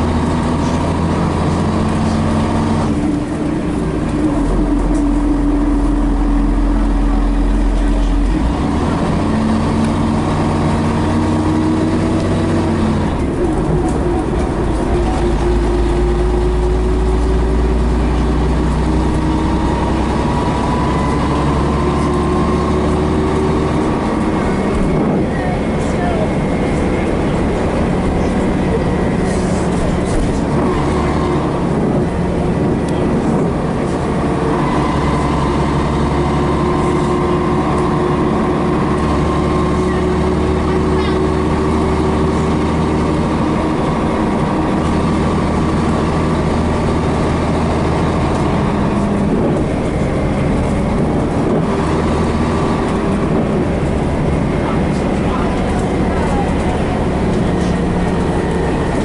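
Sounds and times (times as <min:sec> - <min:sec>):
bus diesel engine running: 0:00.0 - 0:59.0
transmission whine: 0:00.0 - 0:59.0.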